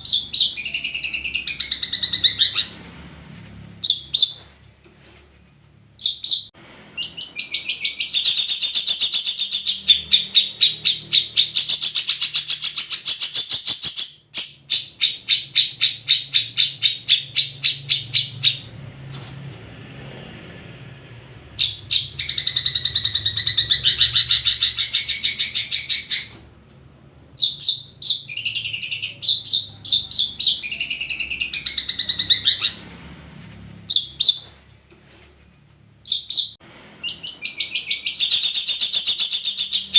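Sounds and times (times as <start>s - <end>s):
bird singing rapid high notes: 0.0s - 2.8s, 21.6s - 26.4s.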